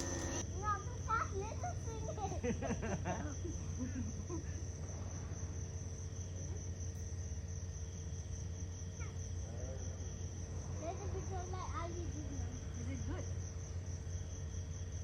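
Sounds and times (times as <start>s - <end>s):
low steady hum: 0.0s - 0.4s
night insects trilling: 0.0s - 0.4s.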